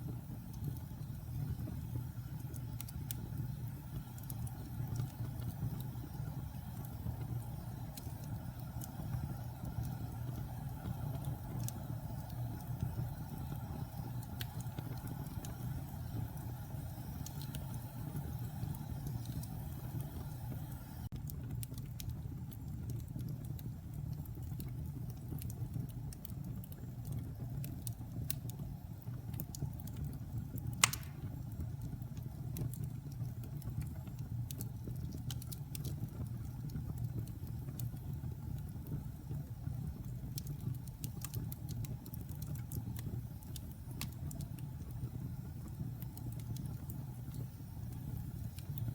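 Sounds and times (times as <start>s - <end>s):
wood fire burning: 0.0s - 48.9s
loud sharp fire pop: 30.8s - 31.3s.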